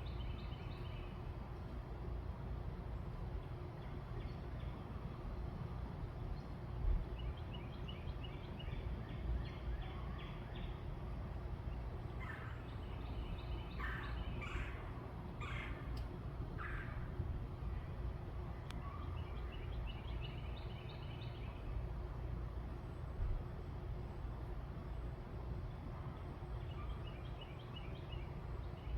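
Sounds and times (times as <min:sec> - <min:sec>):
steady low rumble: 0:00.0 - 0:27.6
birds calling: 0:11.6 - 0:17.3
harsh rasping bird calls: 0:12.2 - 0:17.1.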